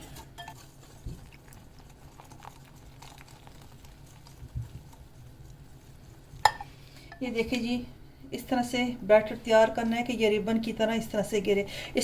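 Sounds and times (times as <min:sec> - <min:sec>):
batter stirred in a bowl: 0:00.0 - 0:07.6.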